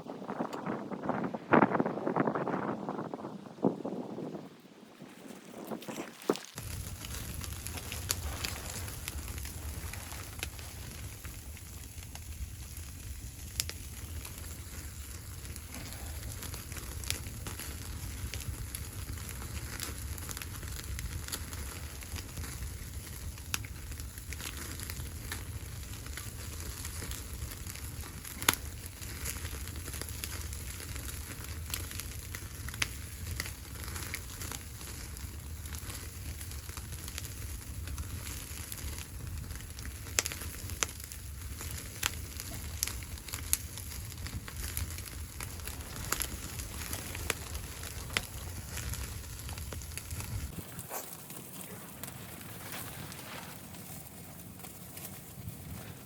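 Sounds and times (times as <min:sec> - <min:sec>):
wood fire crackling and popping: 0:05.1 - 0:56.0
steady low rumble: 0:06.6 - 0:24.3, 0:39.1 - 0:50.9.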